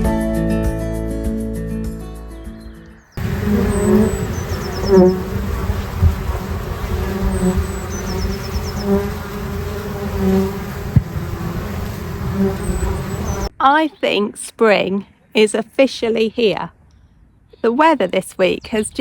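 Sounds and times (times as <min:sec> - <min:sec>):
bees buzzing: 0:03.2 - 0:13.5
single bee flying past: 0:03.2 - 0:13.5.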